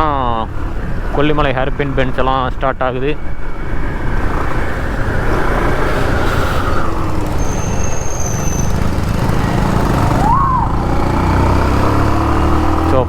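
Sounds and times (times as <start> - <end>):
motorcycle engine running: 3.3 - 13.0.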